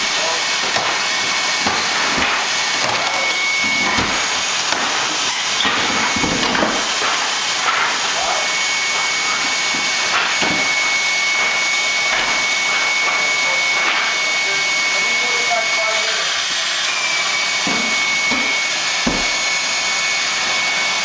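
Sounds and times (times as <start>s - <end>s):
knocks and scrapes on floor: 3.6s - 10.7s, 17.6s - 19.5s.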